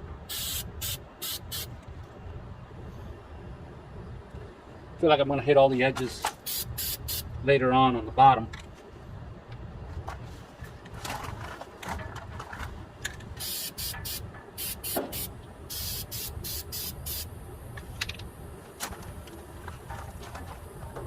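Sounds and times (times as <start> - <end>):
aerosol can spraying bursts: 0.3 - 1.7, 6.4 - 7.2, 13.4 - 17.3.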